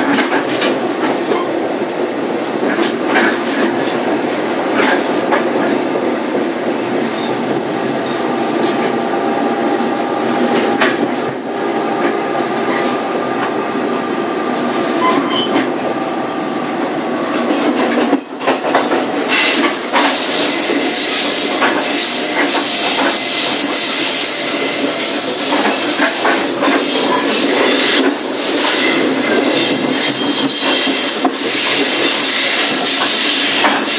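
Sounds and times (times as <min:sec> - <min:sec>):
train wheels rumbling on rail: 0:00.0 - 0:33.9.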